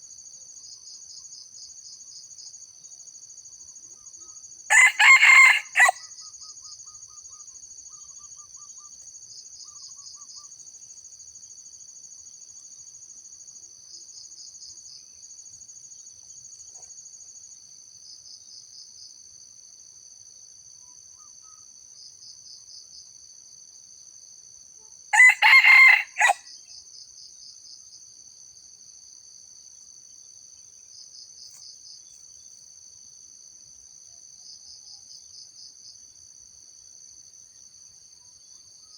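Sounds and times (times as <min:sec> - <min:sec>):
insect chorus buzzing: 0:00.0 - 0:38.9
rooster crowing: 0:04.7 - 0:06.1, 0:25.1 - 0:26.5.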